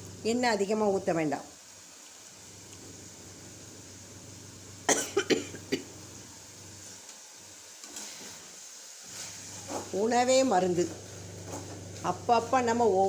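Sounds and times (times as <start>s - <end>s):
person coughing: 4.9s - 5.9s.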